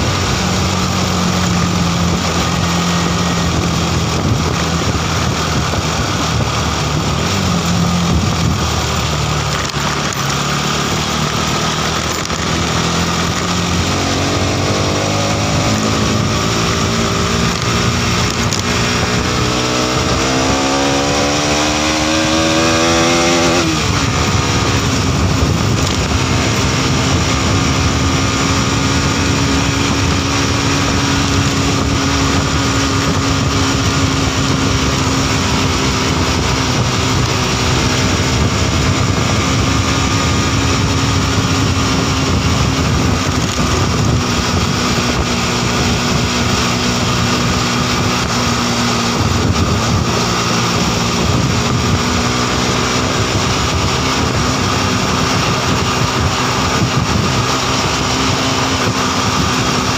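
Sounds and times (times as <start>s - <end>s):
motorcycle engine cruising: 0.0s - 59.9s
wind rushing over microphone: 0.0s - 59.9s.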